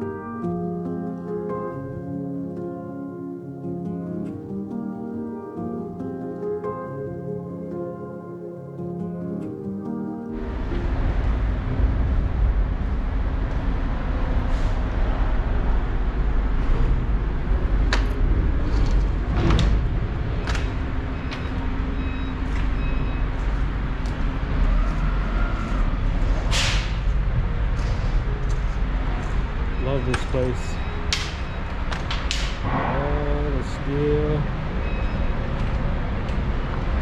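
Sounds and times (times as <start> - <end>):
vehicle and road rumble: 10.3 - 37.0.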